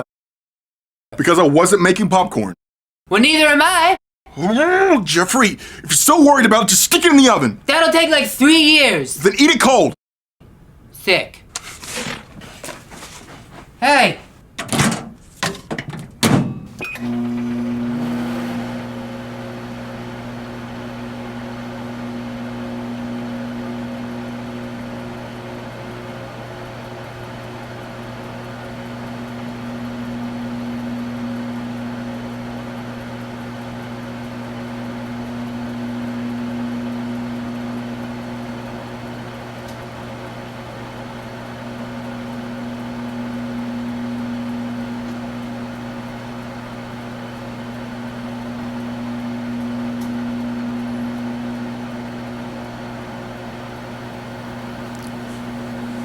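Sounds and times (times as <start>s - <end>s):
microwave oven humming: 15.9s - 56.0s.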